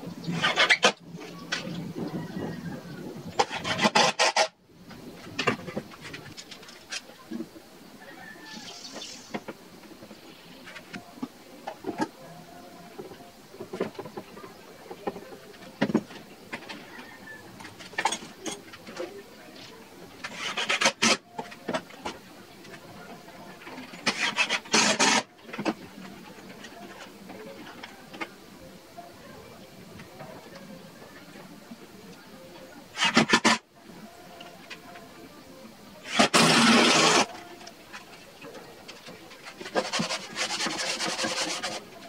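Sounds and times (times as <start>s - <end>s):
rasping rubbing on wood: 39.7s - 41.8s.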